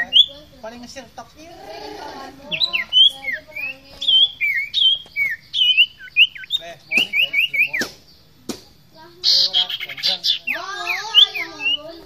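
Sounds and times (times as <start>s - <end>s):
bird singing whistled notes: 0.0s - 0.5s, 2.4s - 8.3s, 9.2s - 12.0s.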